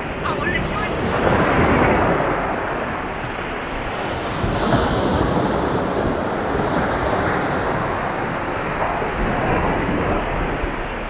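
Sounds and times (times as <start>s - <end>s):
low rumble of surf: 0.0s - 11.0s
sea waves breaking on beach: 0.0s - 11.0s.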